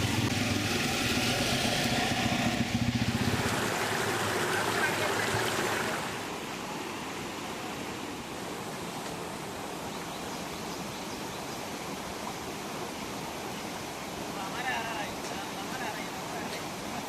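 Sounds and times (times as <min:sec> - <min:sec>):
vehicle engine running: 0:00.0 - 0:06.2
steady noisy hiss: 0:00.0 - 0:17.0.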